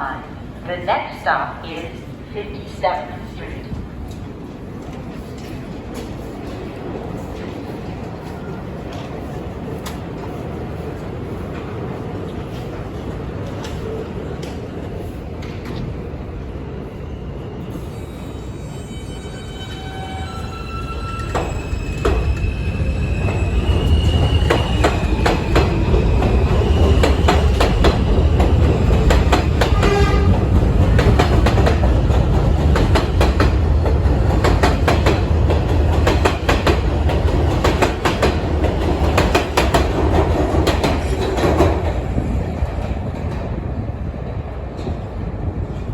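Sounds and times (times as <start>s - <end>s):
subway train motors whining: 0.0s - 45.9s.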